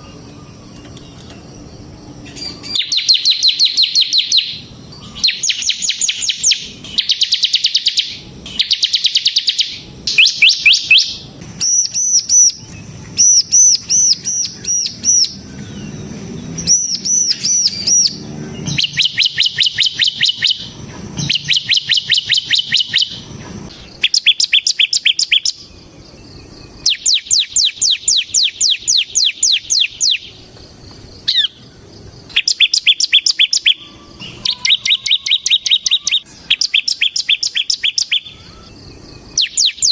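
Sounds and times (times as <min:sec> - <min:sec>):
bird singing fast trills: 0:00.0 - 0:39.9.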